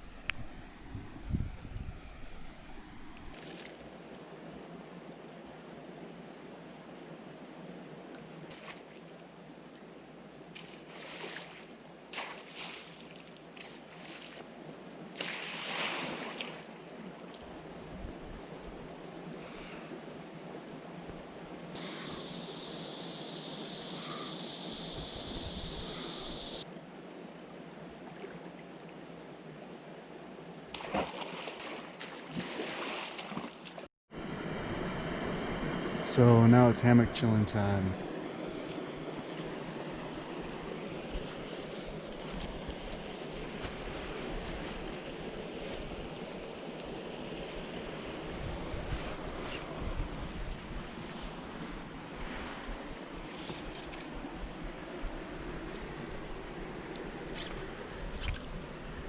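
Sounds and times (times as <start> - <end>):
wind buffeting microphone: 0.0 - 3.3, 24.9 - 26.6, 48.0 - 56.6
water splashes: 10.5 - 14.5, 15.2 - 17.4, 30.7 - 33.9
creek water running: 21.7 - 26.6, 30.6 - 33.9, 36.0 - 59.0
flowing creek water: 21.7 - 29.8, 30.6 - 33.9.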